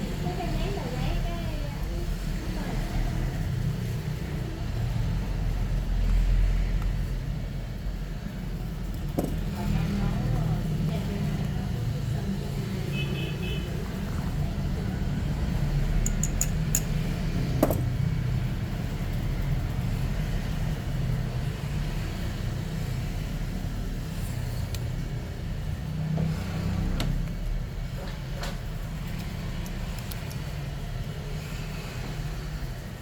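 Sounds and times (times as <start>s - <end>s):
small sharp clicks and taps: 28.4s - 30.6s.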